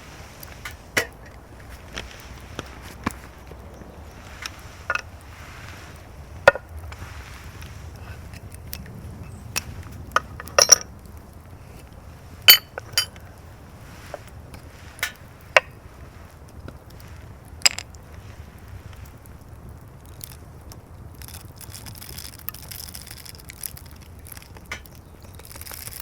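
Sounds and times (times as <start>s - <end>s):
cookware and utensils clinking: 12.5s - 13.2s.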